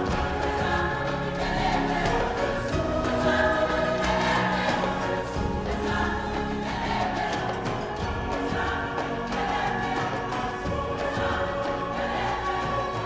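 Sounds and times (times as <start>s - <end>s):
choir singing: 0.0s - 13.0s
music: 0.0s - 13.0s.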